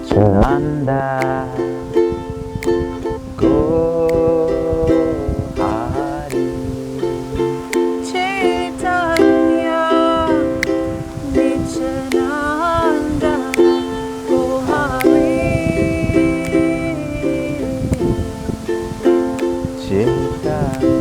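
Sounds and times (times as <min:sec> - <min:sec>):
ukulele strumming: 0:00.0 - 0:21.0
voices singing a chant: 0:00.0 - 0:21.0.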